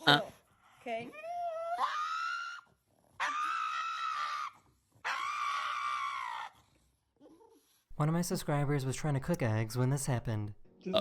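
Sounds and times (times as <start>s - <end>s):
dog screaming wails: 1.2s - 6.7s.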